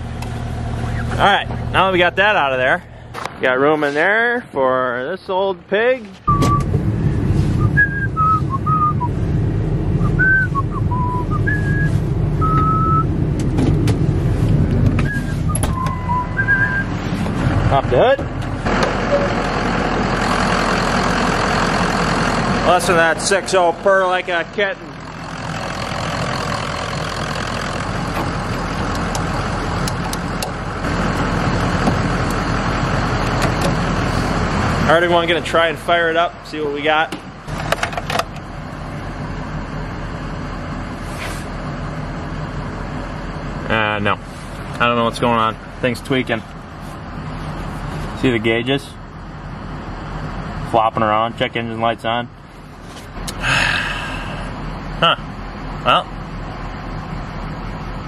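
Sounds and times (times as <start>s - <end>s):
diesel engine running: 0.0s - 58.0s
person whistling: 6.3s - 6.8s, 7.5s - 9.2s, 10.0s - 13.1s, 15.0s - 17.0s.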